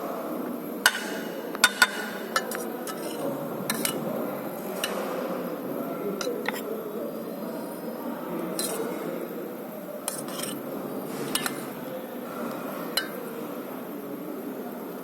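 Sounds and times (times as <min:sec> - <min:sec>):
cutlery and dishes clinking: 0:00.9 - 0:04.1, 0:06.2 - 0:06.7, 0:08.6 - 0:09.1, 0:10.0 - 0:11.8, 0:12.5 - 0:13.3.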